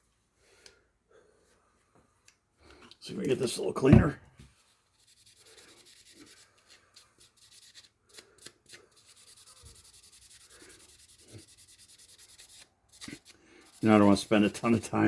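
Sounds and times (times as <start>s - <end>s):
scrubbing on metal blade: 5.0s - 15.0s.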